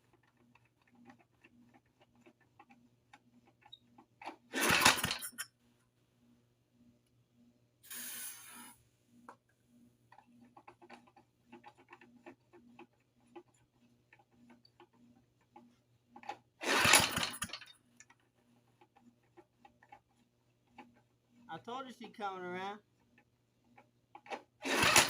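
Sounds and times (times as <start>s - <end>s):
mower engine pulled over by recoil starter: 4.5s - 5.2s, 16.6s - 17.6s, 24.6s - 25.0s.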